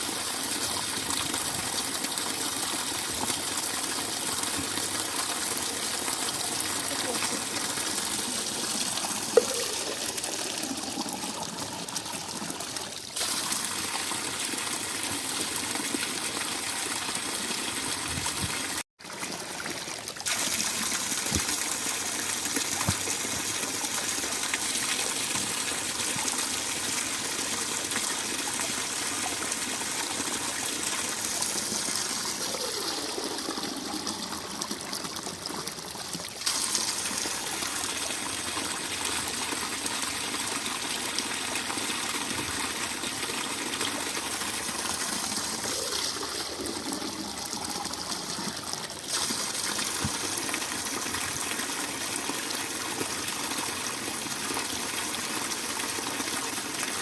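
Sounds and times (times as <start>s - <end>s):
spring water running: 0.0s - 54.9s.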